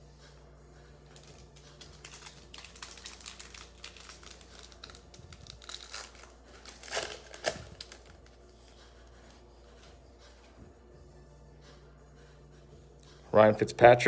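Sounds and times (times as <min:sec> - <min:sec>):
cards being handled: 0:01.1 - 0:10.0
card pack wrapper crinkling: 0:01.2 - 0:08.4.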